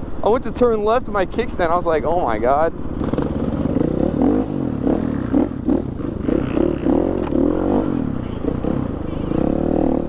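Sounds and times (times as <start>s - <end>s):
dirt bike engine revving: 3.0s - 10.0s.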